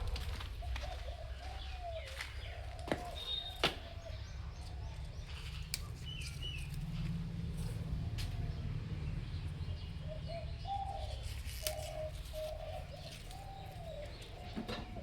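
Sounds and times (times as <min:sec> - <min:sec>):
low steady rumble: 0:00.0 - 0:02.8
birds calling: 0:00.0 - 0:15.0.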